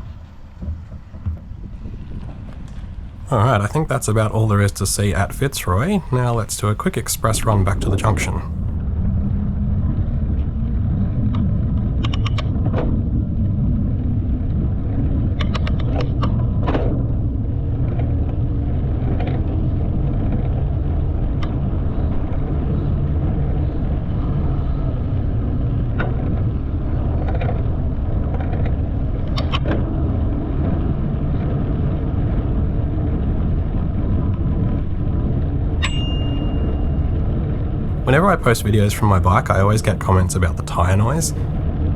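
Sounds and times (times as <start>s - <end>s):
bike tyres rolling on pavement: 0.0s - 3.3s
short high ring: 35.8s - 37.2s.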